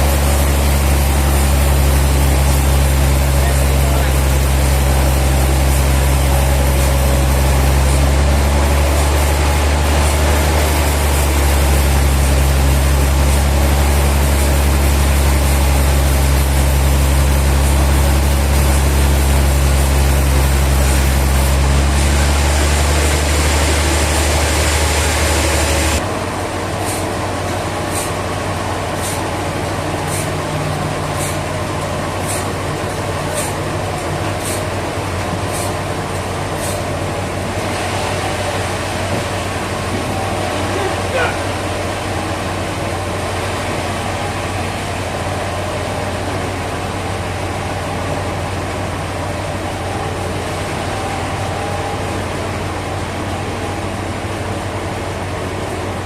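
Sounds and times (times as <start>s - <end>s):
quiet steady machine noise: 0.0s - 56.0s
sawmill machinery humming: 0.0s - 56.0s.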